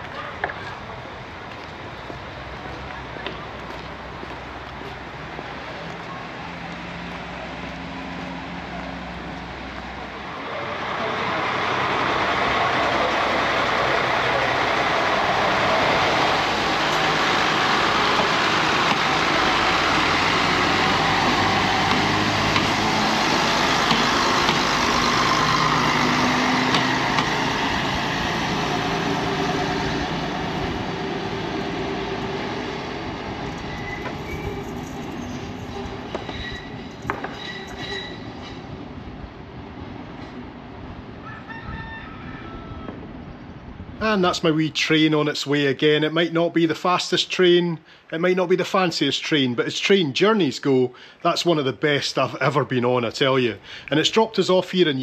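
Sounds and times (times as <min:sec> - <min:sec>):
diesel railcar passing: 0:00.0 - 0:41.4.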